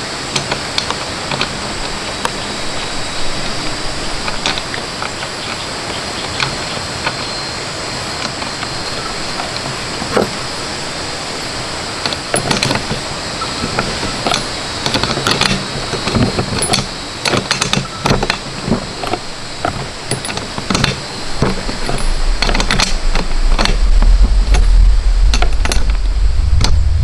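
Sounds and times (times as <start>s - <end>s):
steady hiss: 0.0s - 27.0s
tools and metal parts clicking: 0.3s - 26.8s
low rumble: 21.8s - 27.0s.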